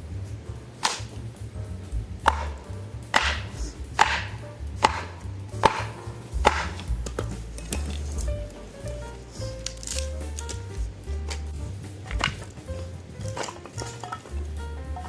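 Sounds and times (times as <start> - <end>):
blade chopping on wood: 2.2 - 8.3.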